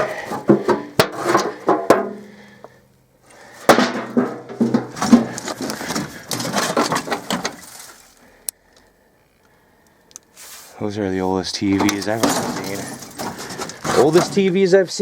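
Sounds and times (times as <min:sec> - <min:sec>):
objects knocking and scraping: 0:00.0 - 0:02.8, 0:03.6 - 0:08.0, 0:11.7 - 0:14.6.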